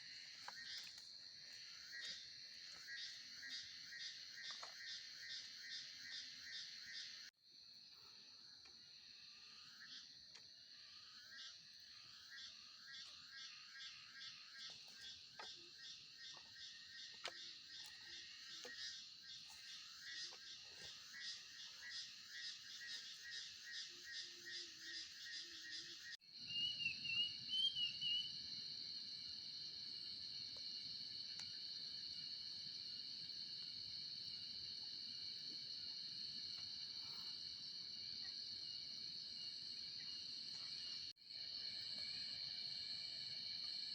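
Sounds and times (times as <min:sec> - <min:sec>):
frogs calling: 0:00.0 - 0:07.3, 0:09.4 - 0:28.4
cricket trill: 0:00.0 - 0:43.9
insects trilling: 0:00.0 - 0:43.9.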